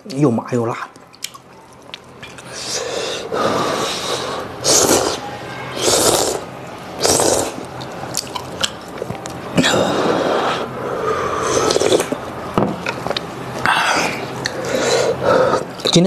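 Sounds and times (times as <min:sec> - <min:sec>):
chewing: 0:00.9 - 0:02.6, 0:07.0 - 0:09.4
slurping noodles: 0:02.5 - 0:05.2, 0:05.8 - 0:07.7, 0:09.6 - 0:12.2.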